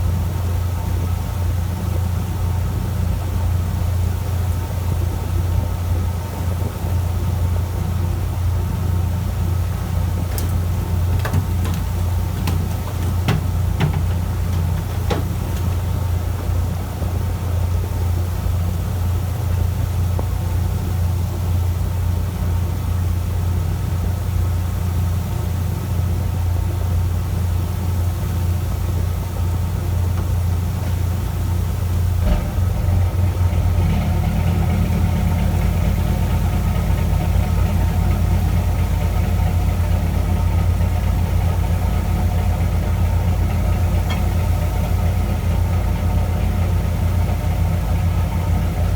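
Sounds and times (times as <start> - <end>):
boat engine droning: 0.0 - 48.9
sharp clicks or knocks: 10.3 - 16.1.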